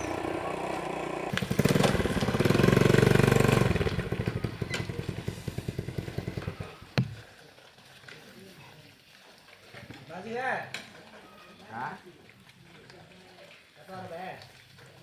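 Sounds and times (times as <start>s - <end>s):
small engine idling and revving: 0.0s - 7.1s.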